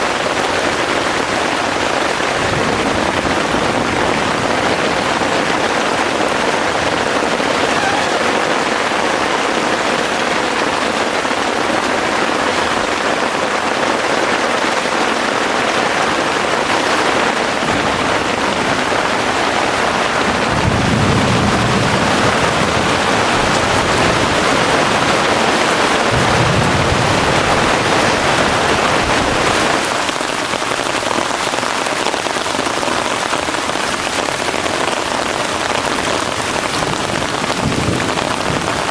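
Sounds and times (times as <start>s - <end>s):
heavy rain: 0.0s - 38.9s
distant thunder rumble: 16.9s - 29.6s.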